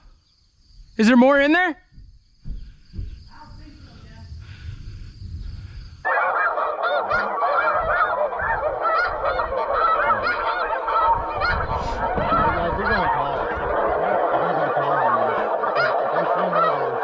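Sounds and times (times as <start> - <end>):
geese honking: 6.1 - 17.0.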